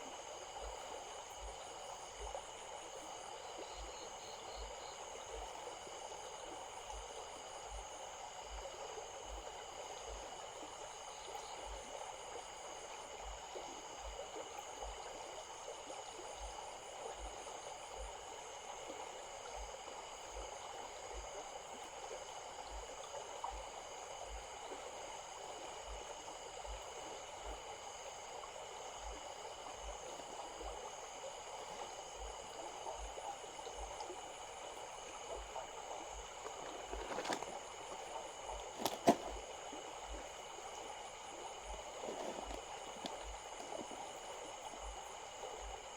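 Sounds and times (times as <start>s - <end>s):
small stream babbling: 0.0s - 45.9s.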